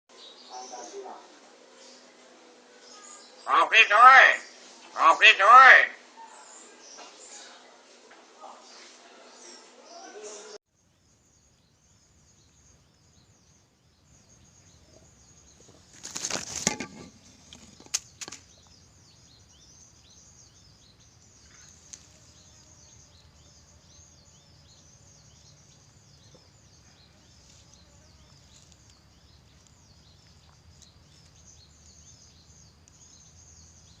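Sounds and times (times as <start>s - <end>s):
small birds chirping: 0.1s - 34.0s
loud rustle: 15.8s - 18.4s.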